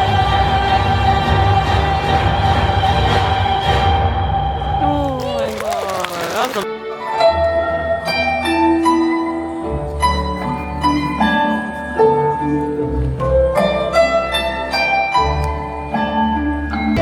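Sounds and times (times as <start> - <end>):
plucked string melody: 6.6 - 17.0.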